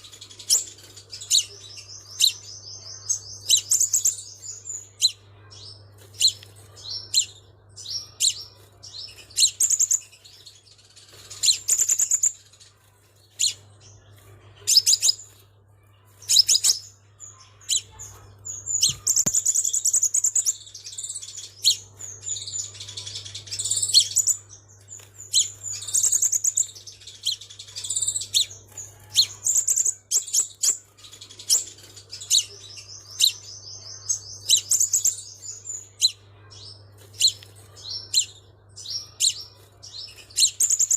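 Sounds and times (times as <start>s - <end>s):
bird chirping and trilling: 0.0s - 40.9s.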